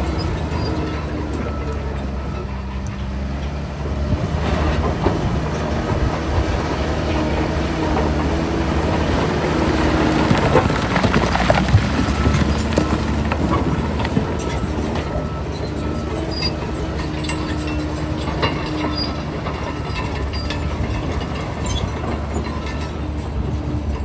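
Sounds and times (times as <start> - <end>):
diesel machinery engine rumbling: 0.0 - 24.0
metallic clanks and knocks: 10.0 - 24.0.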